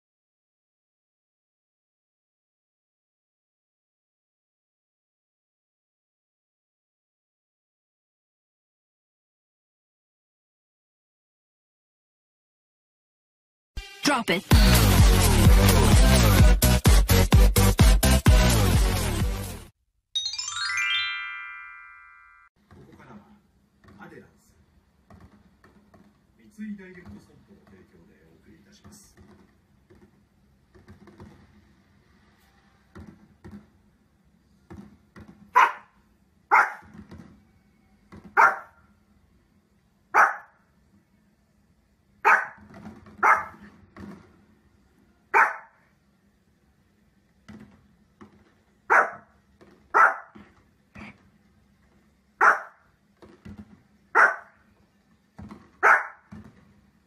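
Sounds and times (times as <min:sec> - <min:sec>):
dog barking: 0:35.6 - 0:36.9, 0:38.3 - 0:38.8, 0:40.2 - 0:40.6, 0:42.2 - 0:42.6, 0:43.2 - 0:43.7, 0:45.3 - 0:45.8, 0:48.9 - 0:49.3, 0:49.9 - 0:50.4, 0:52.4 - 0:52.8, 0:54.2 - 0:54.6, 0:55.8 - 0:56.3.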